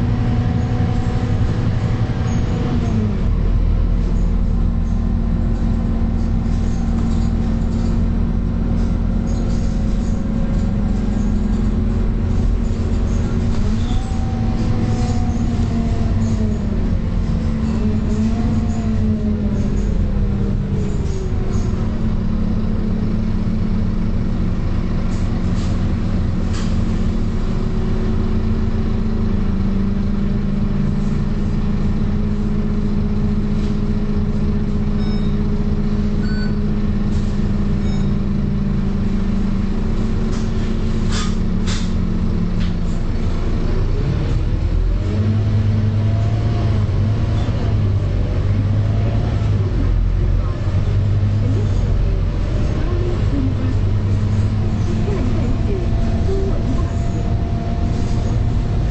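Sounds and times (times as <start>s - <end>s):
bus diesel engine running: 0.0s - 58.9s
faint short beeps: 35.0s - 35.4s, 36.2s - 36.7s, 37.8s - 38.3s.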